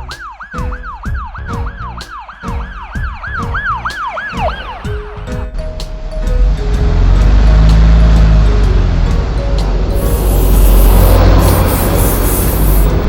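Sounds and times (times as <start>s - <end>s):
ambulance siren yelp: 0.0s - 5.5s
background music: 0.0s - 13.0s.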